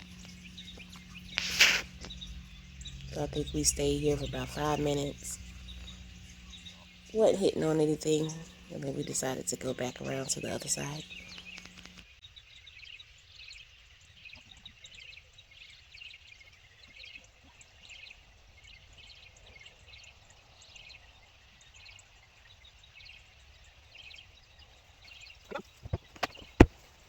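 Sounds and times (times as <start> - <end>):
low outdoor rumble: 0.0 - 12.1
small birds chirping: 0.0 - 27.0.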